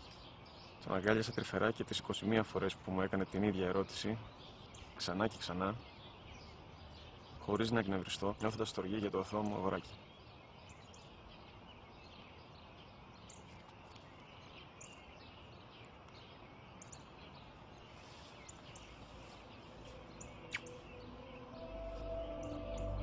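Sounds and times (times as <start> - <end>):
small birds chirping: 0.0 - 23.0
soft slow music: 19.0 - 23.0.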